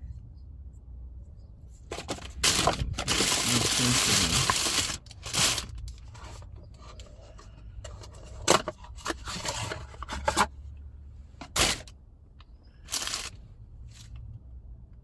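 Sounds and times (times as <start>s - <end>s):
low steady hum: 0.0s - 15.0s
hands scraping and rustling packaging: 1.8s - 10.5s, 12.9s - 14.1s.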